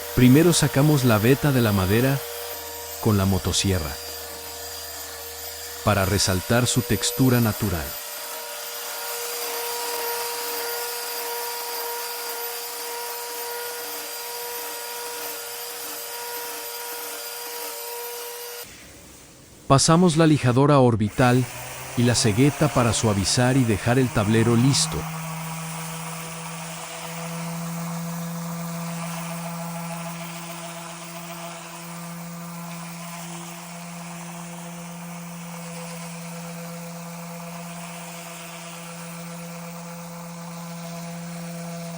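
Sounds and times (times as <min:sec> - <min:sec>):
power tool motor whining: 0:00.0 - 0:19.4, 0:21.1 - 0:41.9
orbital sander on wood: 0:00.0 - 0:41.9.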